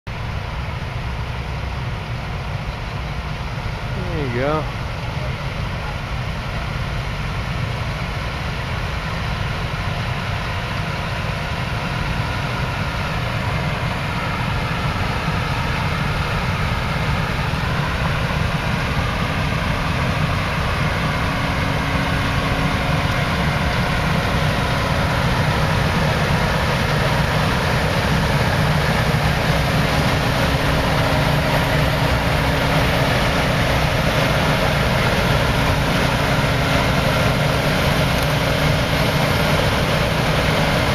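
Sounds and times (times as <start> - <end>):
combine harvester engine drone: 0.1 - 40.9
machinery whine: 0.1 - 40.9.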